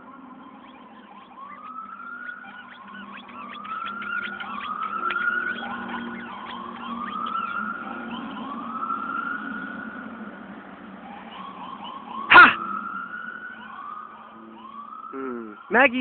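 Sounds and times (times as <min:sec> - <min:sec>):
siren wailing: 0:00.0 - 0:16.0
man shouting: 0:12.3 - 0:12.6.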